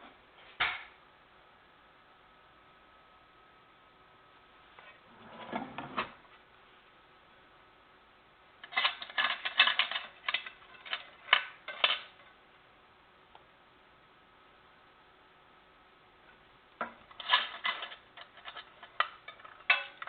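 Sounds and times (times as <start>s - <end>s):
hard objects clicking and clattering: 8.6s - 12.3s, 16.8s - 20.0s.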